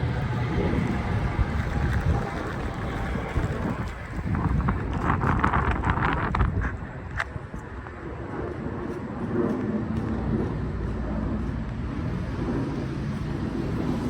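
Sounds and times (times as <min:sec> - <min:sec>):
train rumbling: 0:00.0 - 0:07.0.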